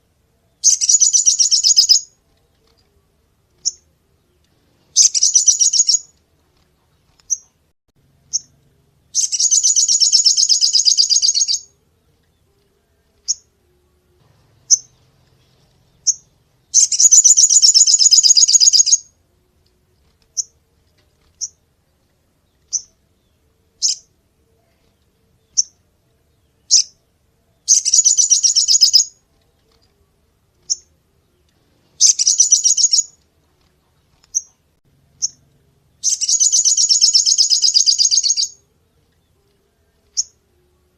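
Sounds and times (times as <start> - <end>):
bird trilling rapidly: 0.6 - 2.1, 5.0 - 6.1, 9.2 - 11.7, 16.0 - 19.1, 27.7 - 29.1, 32.0 - 33.2, 36.0 - 38.6
sharp bird chirps: 0.6 - 2.2, 4.9 - 6.1, 9.1 - 11.7, 15.9 - 19.1, 23.8 - 24.1, 27.7 - 29.2, 32.0 - 33.2, 36.0 - 38.6.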